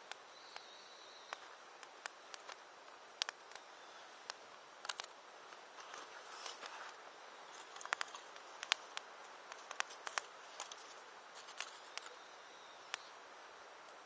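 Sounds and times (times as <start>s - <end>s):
soft hiss of burning: 0.0s - 14.0s
campfire popping and snapping: 1.3s - 5.7s, 7.6s - 10.8s.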